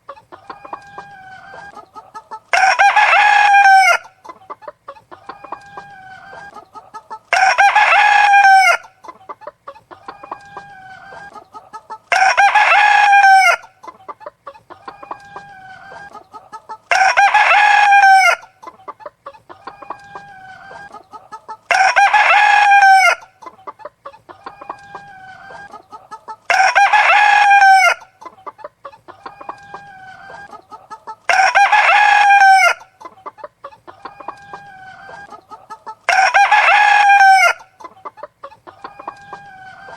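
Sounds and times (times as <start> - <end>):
hens clucking: 0.0 - 39.9
rooster crowing: 0.4 - 4.2, 7.3 - 8.9, 12.1 - 13.7, 16.9 - 18.5, 21.7 - 23.3, 26.5 - 28.1, 29.2 - 32.9, 34.0 - 37.7, 38.7 - 39.9.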